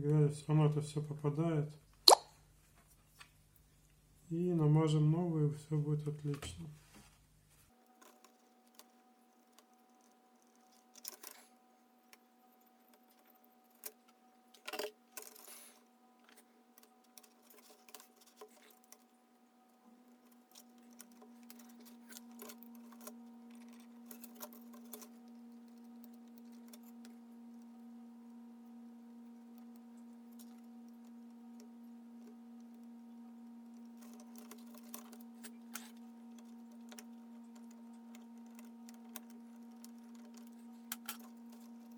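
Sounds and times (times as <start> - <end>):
small parts and tools clicking: 7.8 - 27.2, 29.5 - 32.9, 33.6 - 41.9.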